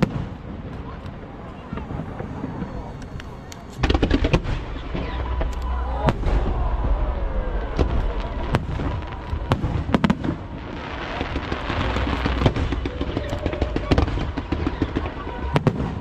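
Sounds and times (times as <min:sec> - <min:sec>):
fireworks bangs: 0:00.0 - 0:16.0
fireworks crackling: 0:00.0 - 0:16.0.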